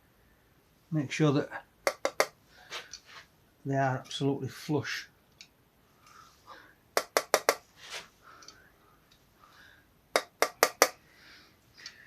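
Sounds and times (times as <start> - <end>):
screwdriver tapping metal: 1.9 - 2.3, 7.0 - 7.6, 10.2 - 11.0.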